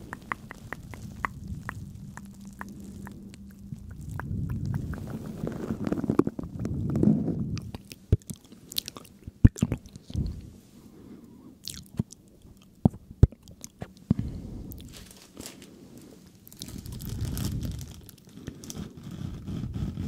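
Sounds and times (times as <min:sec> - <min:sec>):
squishy rustle: 0:00.0 - 0:10.8, 0:14.7 - 0:19.4.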